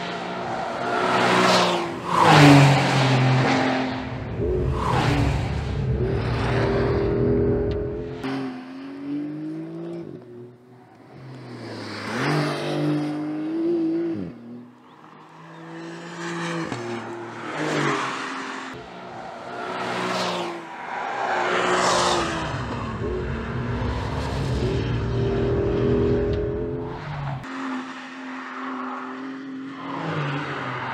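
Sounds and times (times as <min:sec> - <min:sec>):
car engine revving: 0:00.0 - 0:10.0, 0:19.4 - 0:27.8.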